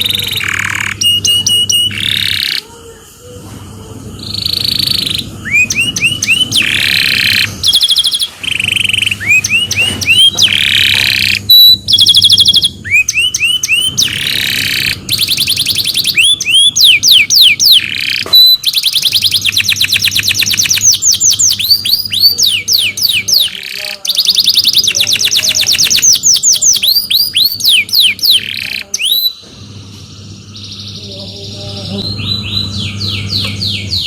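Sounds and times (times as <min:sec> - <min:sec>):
canary singing trills: 0:00.0 - 0:34.0.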